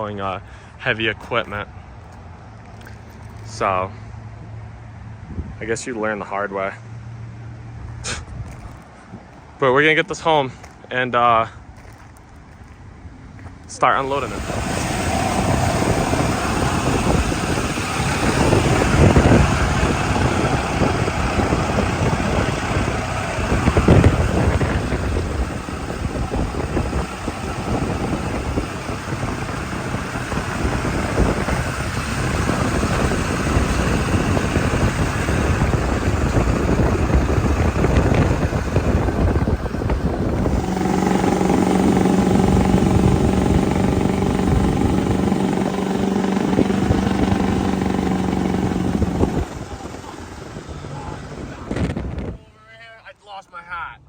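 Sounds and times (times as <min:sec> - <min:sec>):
engine hum: 0:00.0 - 0:52.6
road and wind noise rumble: 0:00.0 - 0:54.0.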